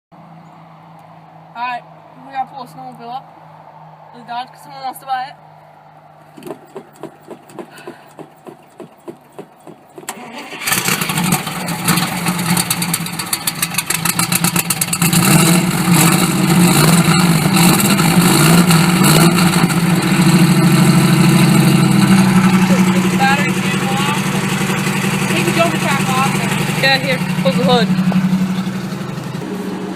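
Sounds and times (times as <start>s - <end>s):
engine cranking on starter: 6.4s - 15.2s
engine running and revving: 10.0s - 29.9s.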